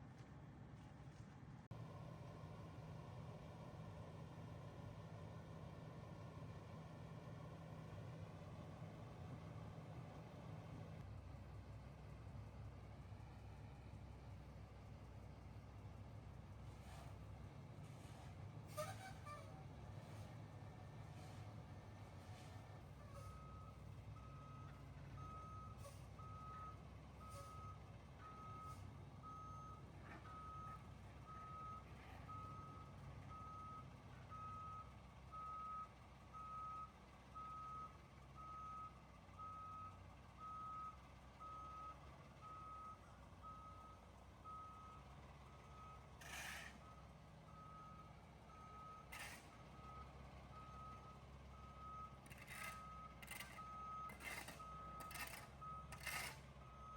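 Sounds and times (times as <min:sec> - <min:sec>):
vehicle reversing alarm beeping: 0:20.0 - 0:56.9.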